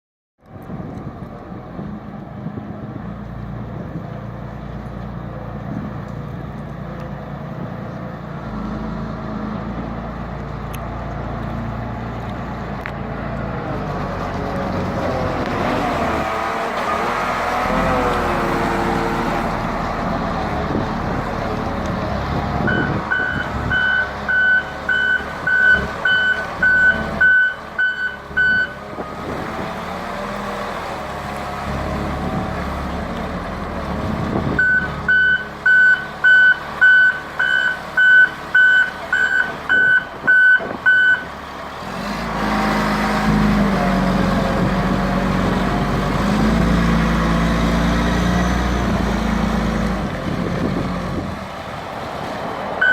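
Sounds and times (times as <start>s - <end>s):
diesel engine working: 0.4s - 52.9s
reversing alarm beeping: 22.7s - 28.8s, 34.6s - 41.3s.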